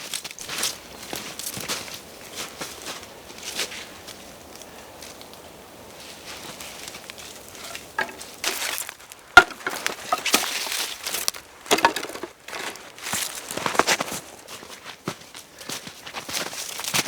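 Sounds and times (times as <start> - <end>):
rustling of small objects: 6.3 - 14.5.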